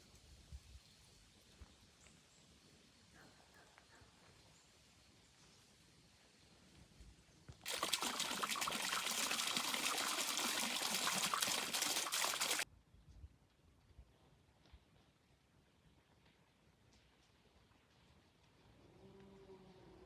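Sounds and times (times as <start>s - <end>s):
liquid pouring: 7.7s - 12.6s.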